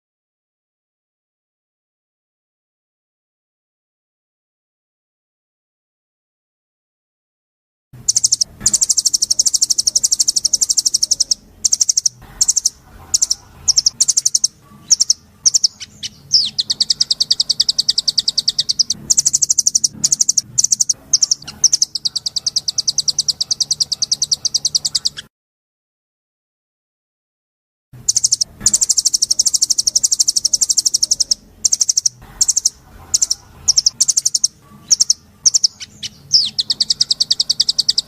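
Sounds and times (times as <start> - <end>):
single bird chirps: 8.1 - 25.3, 28.0 - 38.0
songbird trilling: 8.1 - 25.3, 28.0 - 38.0.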